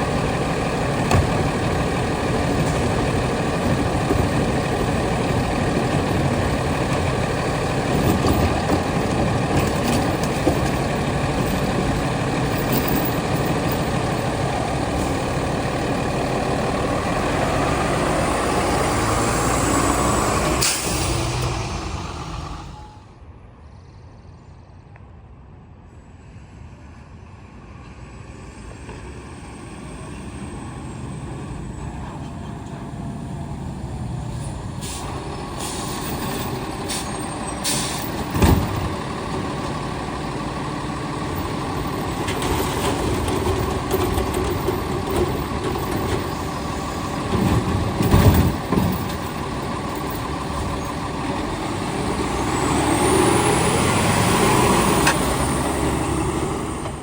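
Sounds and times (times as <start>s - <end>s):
garbage truck engine running: 0.0s - 23.0s, 30.0s - 57.0s
short hissing: 34.8s - 36.0s.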